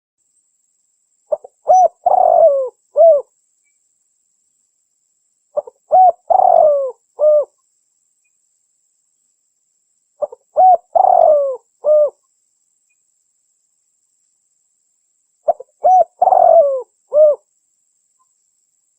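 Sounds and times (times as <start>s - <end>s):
dove cooing: 1.3s - 3.3s, 5.6s - 7.5s, 10.2s - 12.2s, 15.5s - 17.4s.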